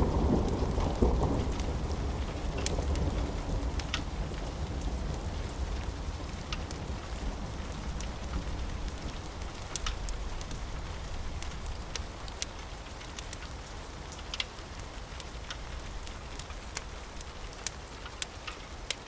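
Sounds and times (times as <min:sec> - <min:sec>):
steady rain: 0:00.0 - 0:19.0
sharp ticks and pops: 0:07.6 - 0:19.0.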